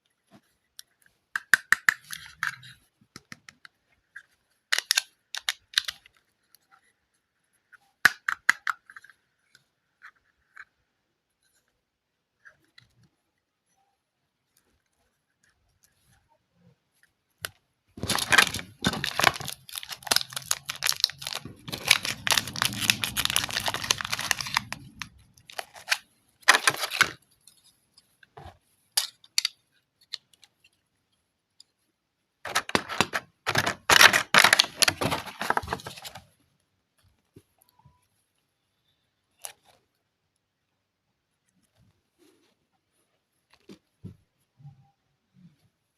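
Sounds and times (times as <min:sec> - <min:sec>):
packaging crinkling and tearing: 0:18.0 - 0:27.2, 0:32.5 - 0:36.2.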